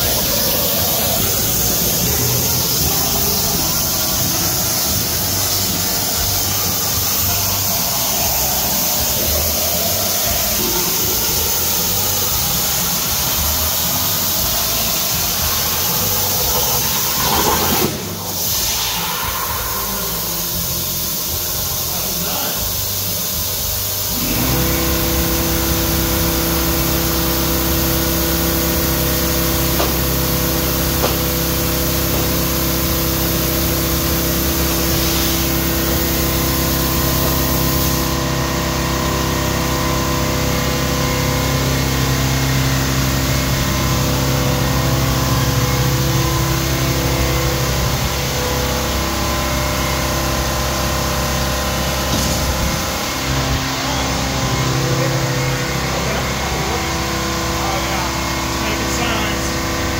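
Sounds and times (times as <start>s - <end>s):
high hiss: 0.0s - 38.1s
machine motor hum: 0.0s - 59.9s.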